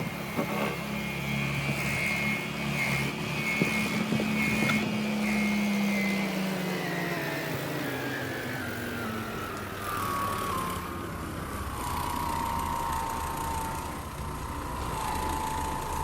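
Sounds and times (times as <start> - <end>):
carpet cleaning machine running: 11.2 - 16.0.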